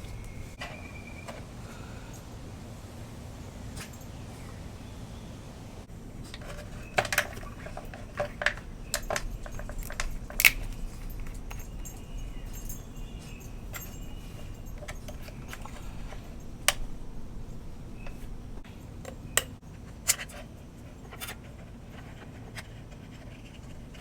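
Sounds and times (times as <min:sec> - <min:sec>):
plastic bottles clattering: 0:06.2 - 0:18.6.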